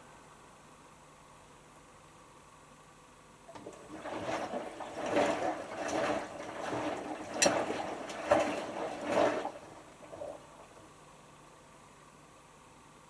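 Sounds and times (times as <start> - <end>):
washing machine drum turning: 3.5 - 10.8
water sloshing: 3.5 - 11.0.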